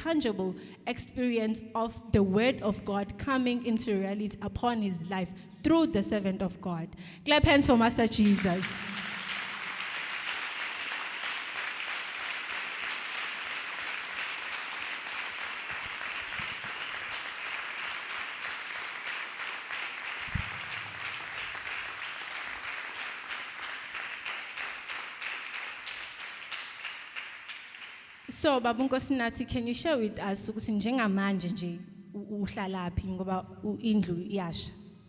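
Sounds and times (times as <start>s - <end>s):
congregation applauding: 8.2s - 28.3s.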